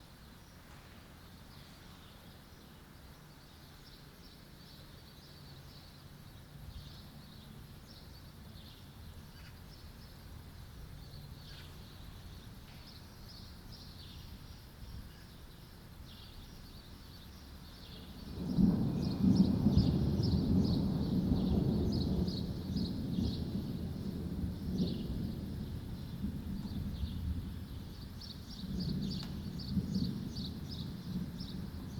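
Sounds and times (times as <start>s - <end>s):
deep rumble of thunder: 17.6s - 31.9s.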